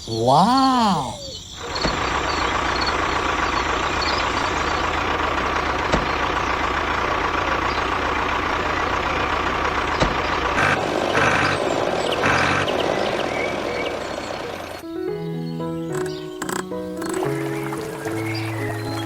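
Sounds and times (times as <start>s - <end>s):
tractor engine running: 1.6s - 14.8s
sharp clicks: 15.9s - 17.2s.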